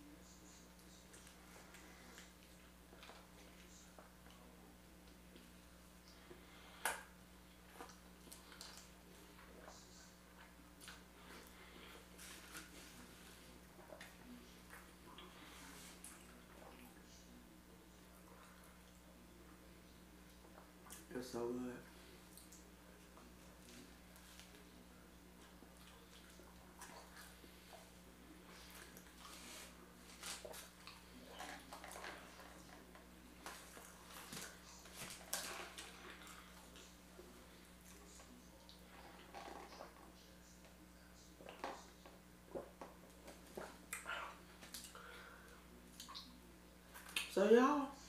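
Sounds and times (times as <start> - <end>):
low steady hum: 0.0 - 48.0
soft mouth clicks and smacks: 22.3 - 22.7, 45.9 - 47.4.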